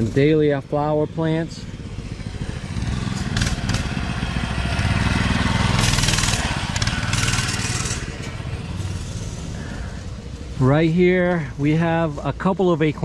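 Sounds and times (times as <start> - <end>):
small engine running: 1.6 - 10.0.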